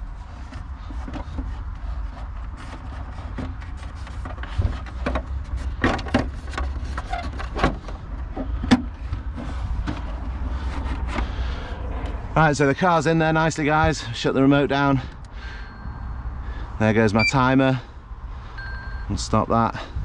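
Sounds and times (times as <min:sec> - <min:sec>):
knocks and clunks: 0:00.4 - 0:11.4
low rumble: 0:09.0 - 0:14.0.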